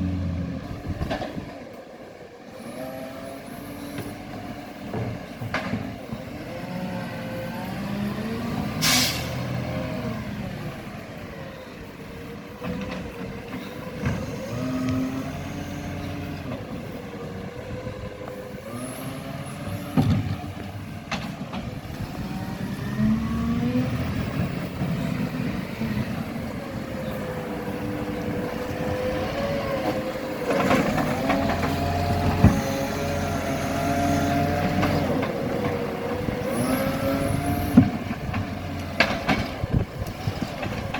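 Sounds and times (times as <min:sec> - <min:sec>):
garbage truck diesel engine: 0:00.0 - 0:40.9
air hiss: 0:08.8 - 0:09.3.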